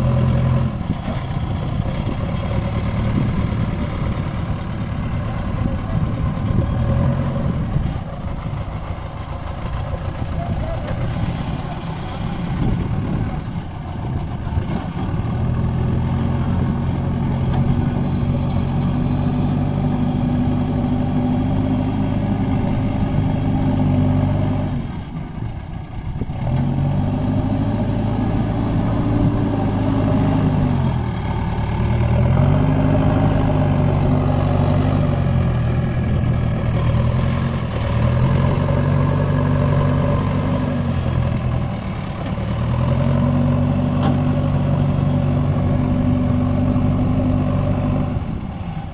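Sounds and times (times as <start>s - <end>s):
tractor engine revving: 0.0s - 48.9s.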